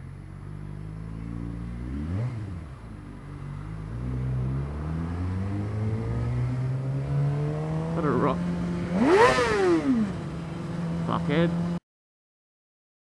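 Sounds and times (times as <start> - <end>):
motorcycle engine accelerating: 0.0 - 11.8.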